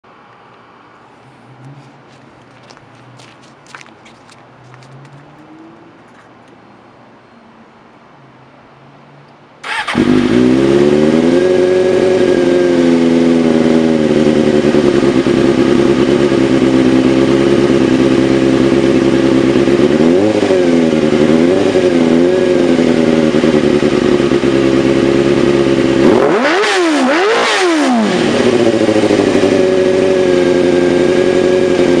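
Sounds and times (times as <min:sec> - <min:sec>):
motorcycle engine idling and revving: 0:09.6 - 0:32.0.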